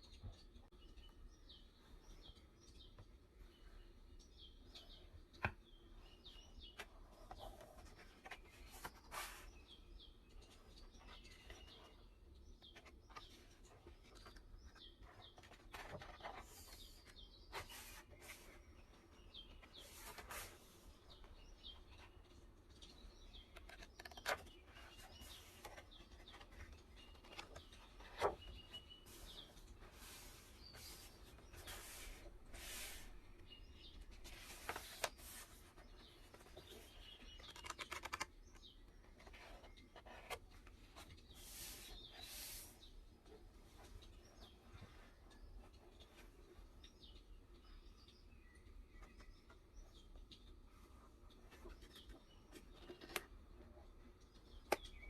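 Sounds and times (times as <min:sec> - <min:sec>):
faint birds chirping: 0:00.0 - 0:55.0
paper rustling and clicks: 0:12.7 - 0:18.5, 0:22.8 - 0:29.7, 0:36.3 - 0:40.4.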